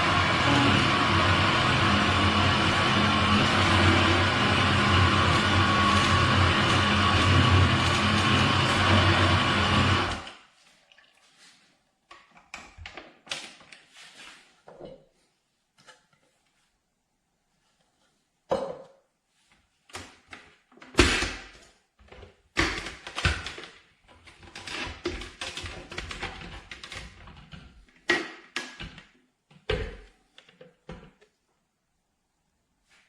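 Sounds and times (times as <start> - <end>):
objects knocking and clunking: 18.5 - 19.1, 22.0 - 31.4.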